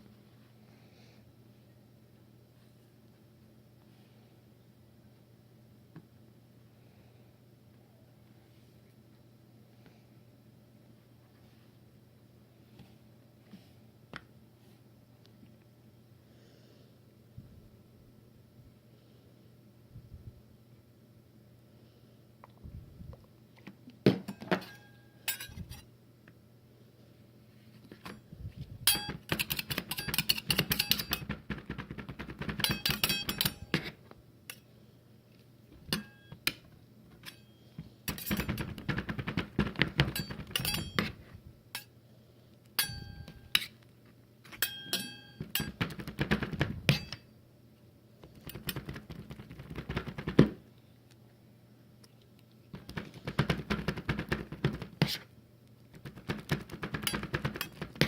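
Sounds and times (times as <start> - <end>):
spatulas chopping on metal plate: 28.9 - 34.0, 35.9 - 36.4, 38.1 - 41.2, 42.8 - 43.7, 44.5 - 47.2, 48.3 - 50.5, 52.8 - 55.2, 55.9 - 58.0.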